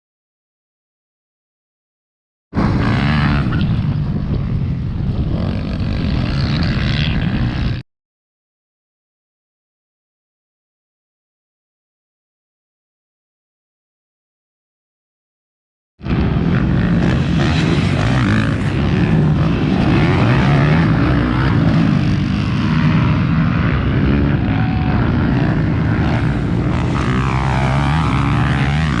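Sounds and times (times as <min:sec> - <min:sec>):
motorcycle engines racing: 0:02.6 - 0:07.8, 0:16.0 - 0:29.0.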